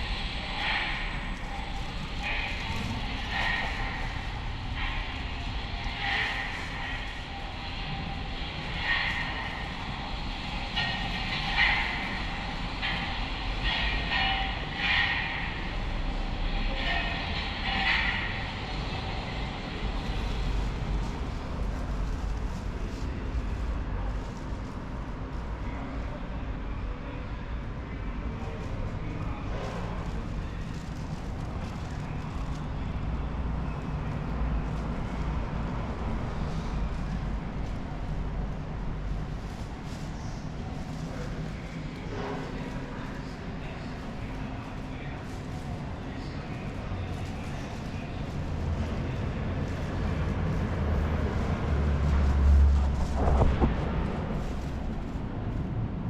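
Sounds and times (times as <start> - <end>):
train rumbling: 0.0 - 56.0
low rumble: 48.5 - 56.0.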